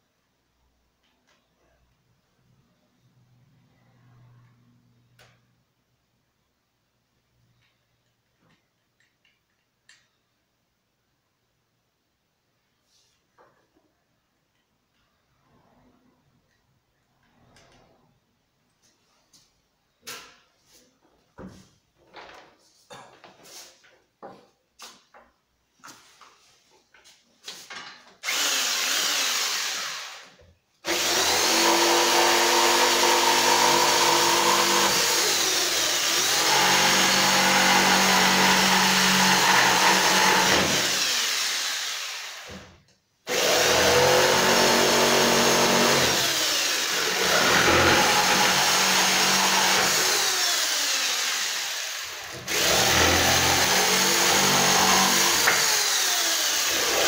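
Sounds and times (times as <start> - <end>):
electric saw cutting wood: 28.2 - 30.3, 30.9 - 42.7, 43.3 - 57.0.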